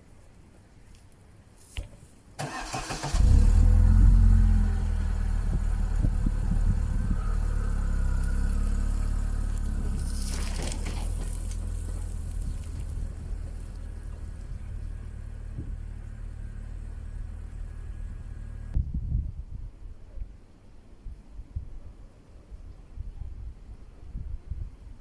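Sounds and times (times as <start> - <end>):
car engine starting and idling: 2.4 - 18.8.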